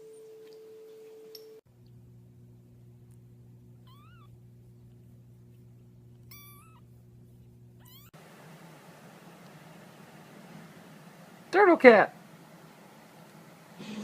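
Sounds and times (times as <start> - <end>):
steady low hum: 0.2 - 14.0
cat meowing: 3.8 - 4.3, 6.3 - 6.9, 7.8 - 8.2.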